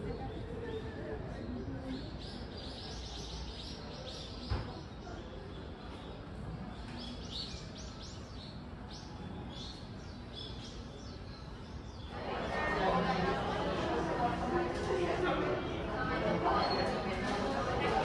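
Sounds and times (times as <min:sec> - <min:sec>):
small birds chirping: 0:01.8 - 0:12.2.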